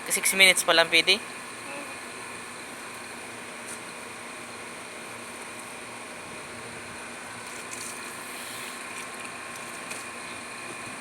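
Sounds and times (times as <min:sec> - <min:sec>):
machine humming and hissing: 0:01.3 - 0:09.5.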